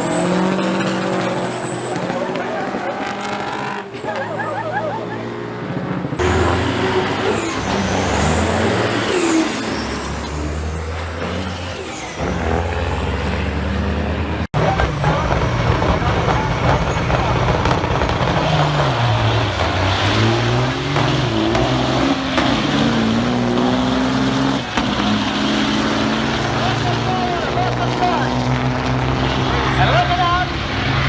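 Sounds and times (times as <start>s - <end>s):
diesel truck engines running: 0.0s - 31.0s
high engine whine: 0.0s - 31.0s.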